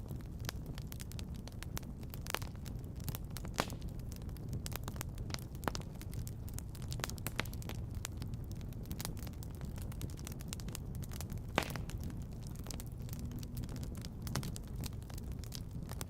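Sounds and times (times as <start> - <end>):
wood fire crackling and popping: 0.0 - 16.0
low rumble: 6.7 - 16.0.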